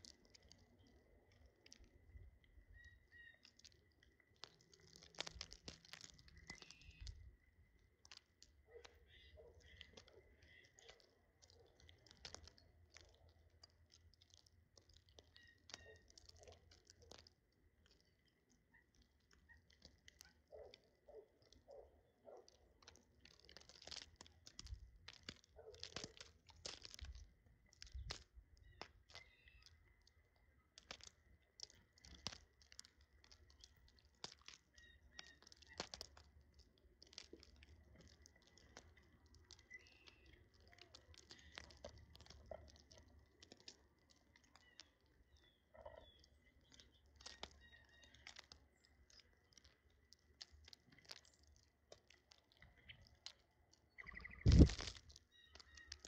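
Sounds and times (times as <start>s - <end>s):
birds cracking seed: 0.0s - 56.0s
soft bird chirps: 0.0s - 56.0s.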